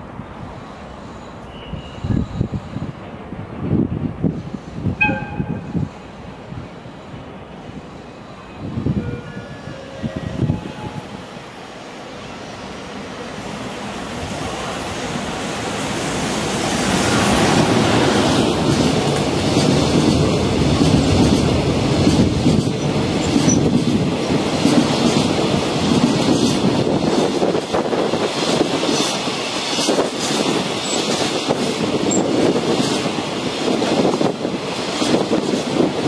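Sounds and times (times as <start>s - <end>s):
freight train rumbling: 0.0s - 36.0s
wheels clacking over rail joints: 16.9s - 34.1s.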